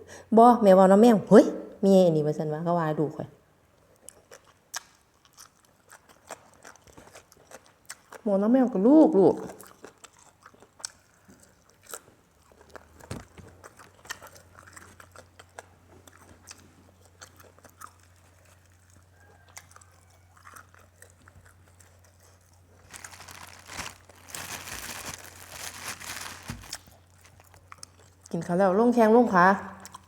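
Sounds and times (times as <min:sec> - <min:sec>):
person chewing and crunching food: 0:03.8 - 0:08.3, 0:09.4 - 0:28.5, 0:29.8 - 0:30.0.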